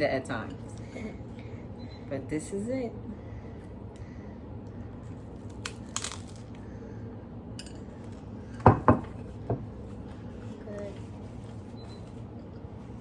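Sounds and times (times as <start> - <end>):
crunchy bites of food: 5.4 - 6.6.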